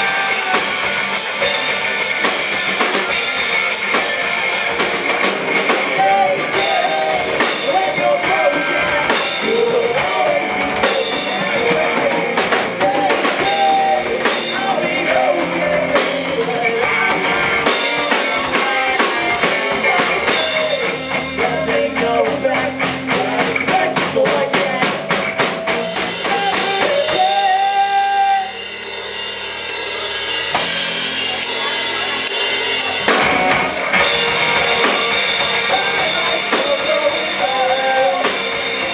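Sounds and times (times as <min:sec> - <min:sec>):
drum kit: 0:00.0 - 0:38.9
electric guitars: 0:00.0 - 0:38.9
gliding lead guitar melody: 0:29.7 - 0:38.9.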